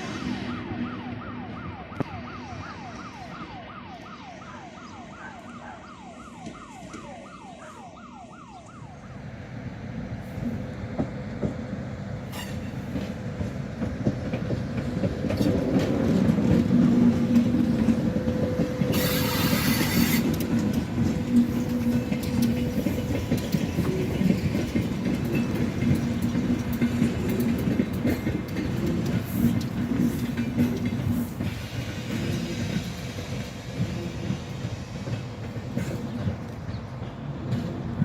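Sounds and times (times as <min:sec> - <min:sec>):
train wheels rumbling on rails: 0:09.0 - 0:38.0.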